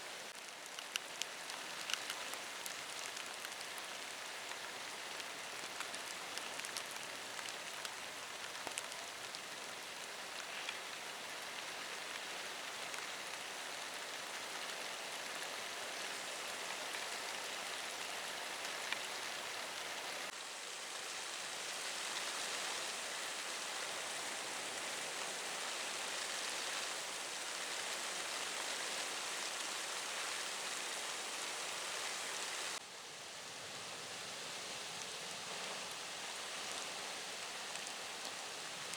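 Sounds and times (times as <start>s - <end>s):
heavy rain hissing: 15.3s - 32.8s.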